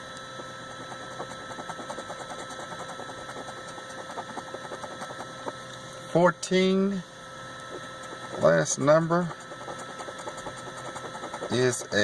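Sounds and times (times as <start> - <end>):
faint steady hum: 0.0 - 12.0
knife scraping ticket coating: 0.7 - 5.6, 7.8 - 12.0.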